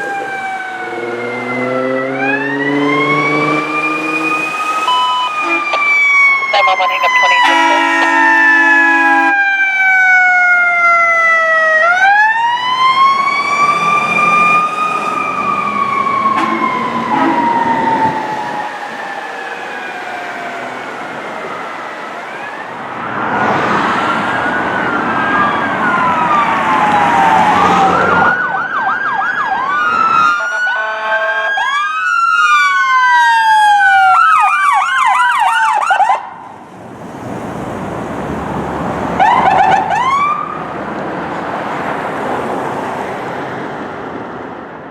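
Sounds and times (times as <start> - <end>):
emergency sirens wailing and yelping: 0.0 - 44.9
heavy vehicle rushing by: 12.7 - 28.4.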